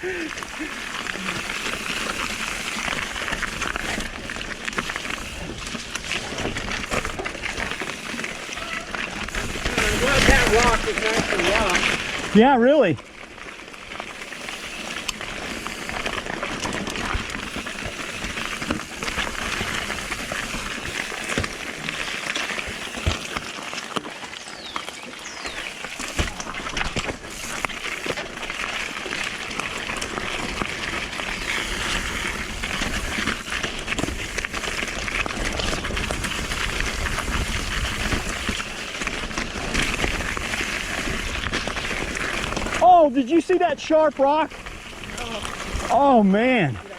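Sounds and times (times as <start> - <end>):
bike knocking and rattling on rocks: 0.0 - 46.9
tyres hissing on wet ground: 6.9 - 12.9, 41.9 - 46.9.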